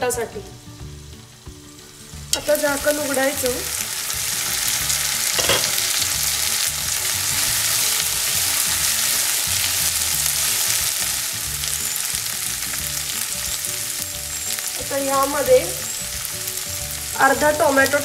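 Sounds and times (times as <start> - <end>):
vegetables sizzling in oil: 0.0 - 18.0
spatula scraping a pan: 4.0 - 11.2.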